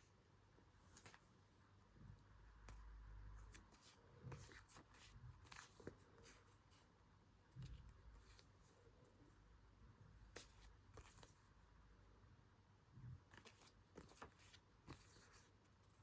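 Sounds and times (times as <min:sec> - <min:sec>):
paper rustling: 0:13.3 - 0:16.0.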